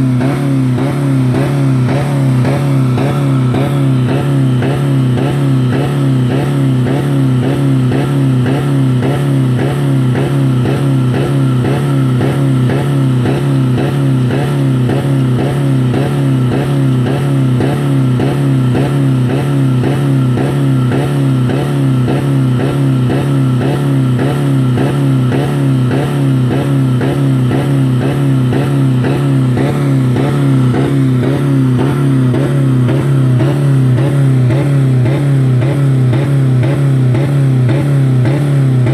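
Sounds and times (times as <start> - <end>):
car engine droning at high revs: 0.0 - 38.9.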